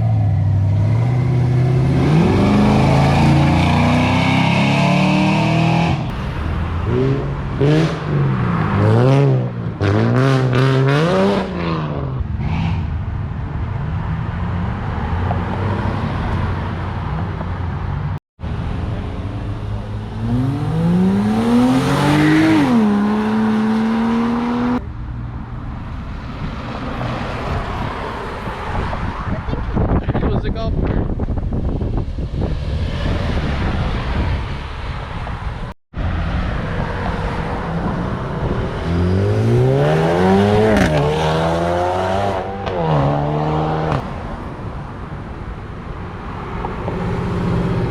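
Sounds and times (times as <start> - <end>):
car engines revving: 0.0 - 30.1, 32.4 - 47.9
car accelerating hard: 20.1 - 24.8, 36.9 - 44.3.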